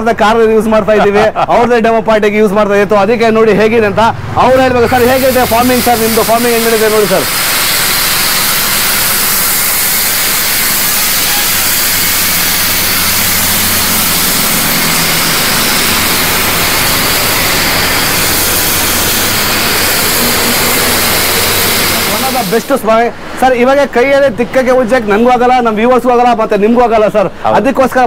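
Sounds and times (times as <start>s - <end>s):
pressure washer spraying: 4.7s - 22.8s.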